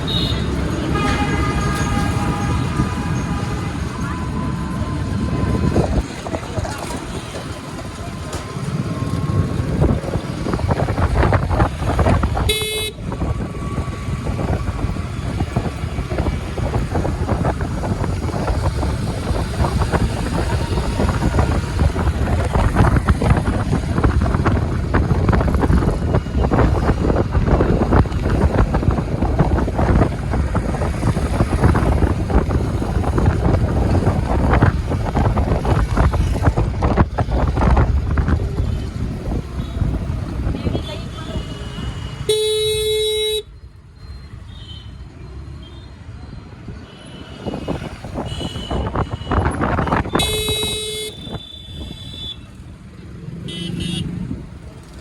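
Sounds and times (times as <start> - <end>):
wind buffeting: 0.0 - 42.3
road noise: 0.0 - 55.0.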